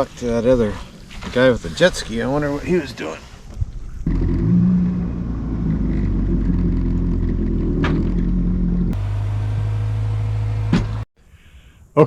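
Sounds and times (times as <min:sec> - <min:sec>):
watercraft engine droning: 0:04.0 - 0:11.0.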